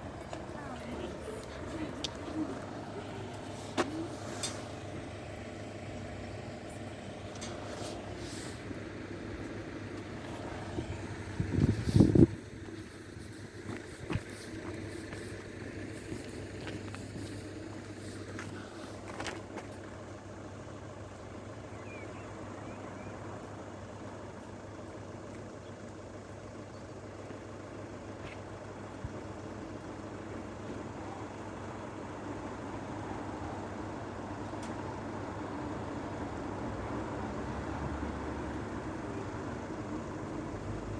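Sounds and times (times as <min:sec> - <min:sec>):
road vehicle hum: 0:00.0 - 0:40.9.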